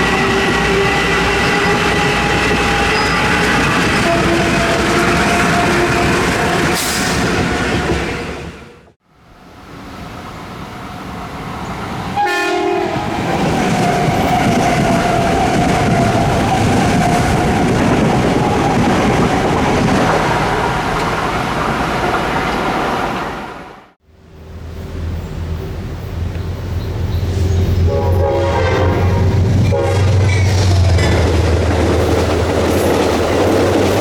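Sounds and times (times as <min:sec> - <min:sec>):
train horn blast: 0:00.0 - 0:07.2, 0:12.2 - 0:13.2, 0:27.5 - 0:30.5
train wheel and rail noise: 0:00.0 - 0:34.0.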